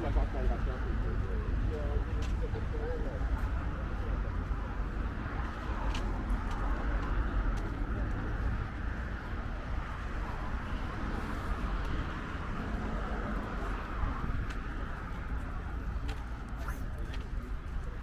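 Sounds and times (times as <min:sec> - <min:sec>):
indistinct voices: 0:00.0 - 0:04.7
street traffic rumble: 0:00.0 - 0:18.0.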